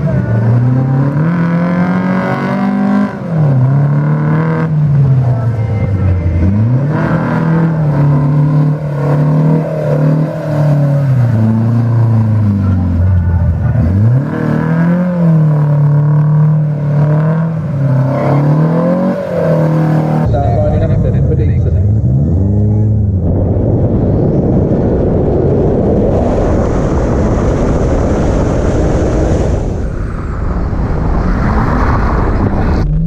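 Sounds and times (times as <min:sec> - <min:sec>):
car engine revving hard: 0:00.0 - 0:05.2, 0:06.4 - 0:20.9.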